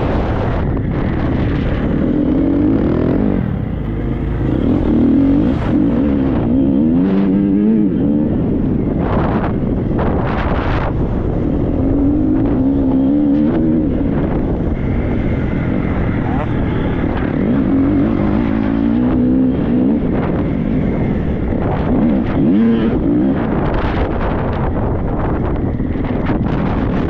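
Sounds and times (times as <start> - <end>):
motocross bike engine revving: 1.2 - 8.6, 14.9 - 24.1.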